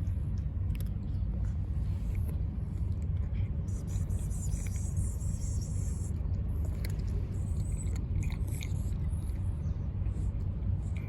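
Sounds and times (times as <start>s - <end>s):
cat chewing food: 0.0s - 11.0s.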